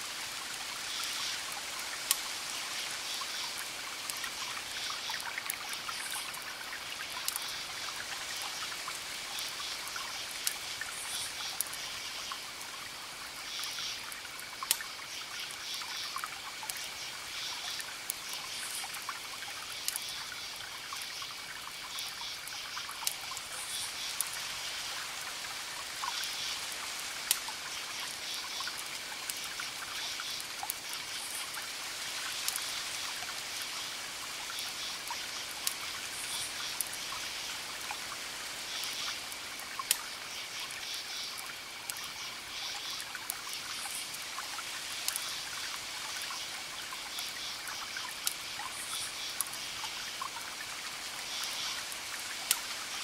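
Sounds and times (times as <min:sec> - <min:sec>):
wood fire crackling: 0:09.4 - 0:10.6, 0:23.0 - 0:23.6, 0:32.3 - 0:32.7, 0:39.4 - 0:40.0, 0:51.4 - 0:53.0.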